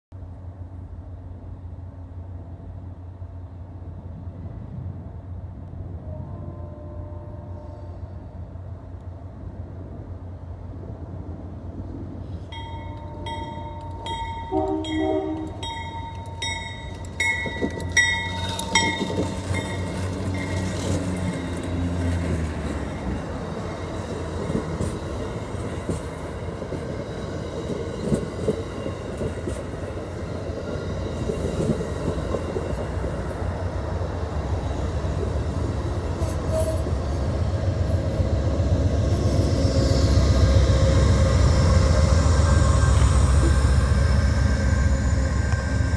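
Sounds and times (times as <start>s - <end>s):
train cars rumbling: 0.2s - 45.9s
train horn: 6.0s - 8.3s, 14.4s - 16.0s, 36.2s - 37.0s.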